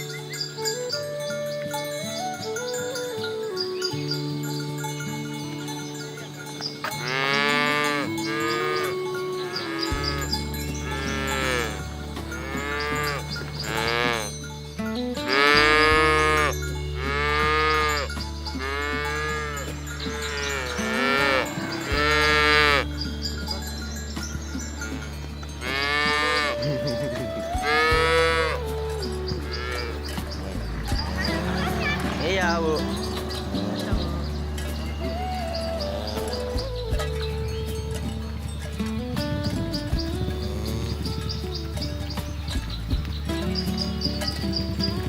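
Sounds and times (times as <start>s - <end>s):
background music: 0.0s - 45.0s
cows mooing: 6.8s - 14.4s, 15.2s - 23.7s, 24.8s - 37.2s, 40.1s - 42.0s.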